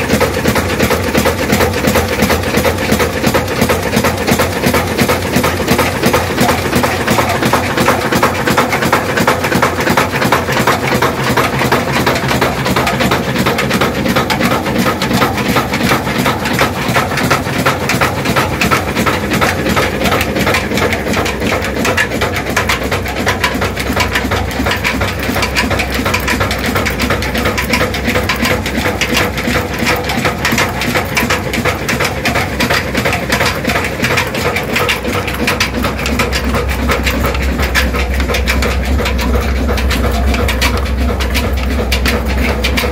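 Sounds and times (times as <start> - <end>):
stationary engine clattering: 0.0 - 42.9.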